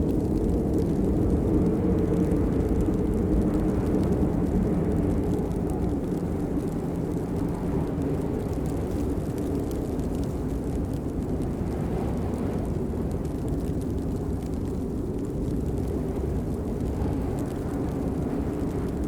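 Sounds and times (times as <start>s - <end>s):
steady rain rushing: 0.0s - 19.0s.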